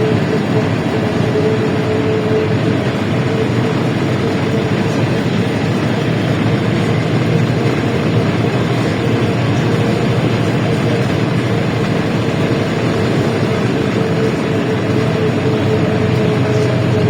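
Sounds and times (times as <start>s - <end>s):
bus engine and road noise: 0.0s - 17.0s
constant whine: 0.0s - 17.0s.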